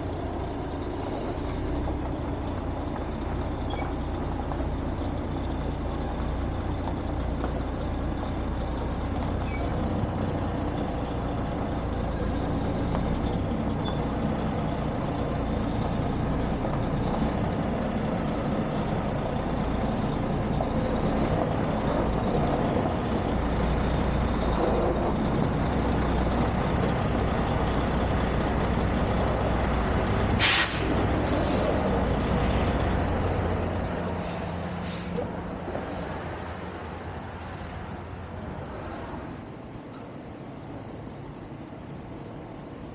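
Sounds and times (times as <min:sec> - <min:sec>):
truck engine rumbling: 0:00.0 - 0:42.9
air hiss: 0:30.4 - 0:31.0.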